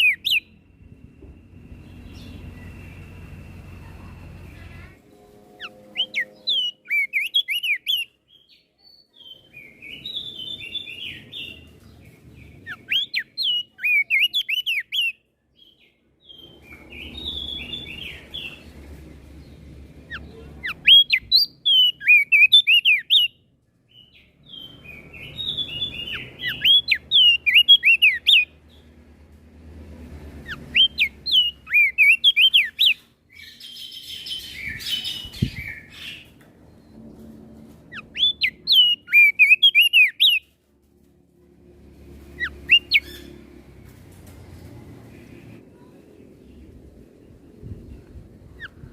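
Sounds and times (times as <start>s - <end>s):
faint low rumble: 0.4s - 6.8s, 43.0s - 48.9s.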